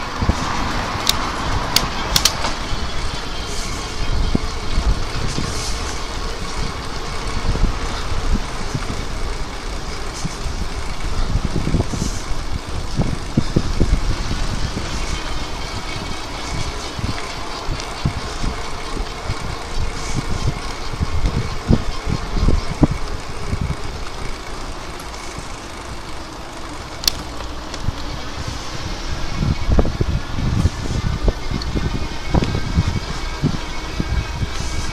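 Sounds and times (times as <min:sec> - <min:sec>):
bike tyre noise: 0:00.0 - 0:34.9
wind buffeting microphone: 0:00.0 - 0:34.9
sharp click: 0:01.0 - 0:02.6.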